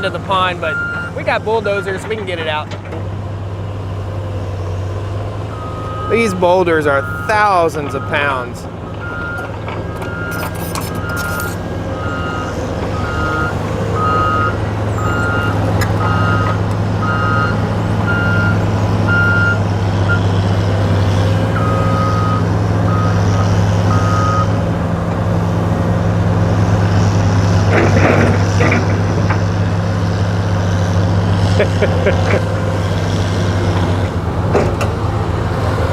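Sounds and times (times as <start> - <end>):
diesel engine running: 0.0 - 35.9
backup alarm beeping: 9.0 - 20.2, 21.6 - 24.5.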